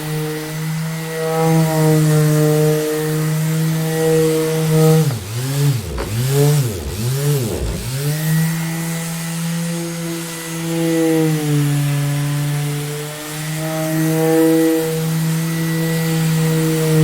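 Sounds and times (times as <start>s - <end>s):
electric orbital sander humming: 4.2s - 8.2s.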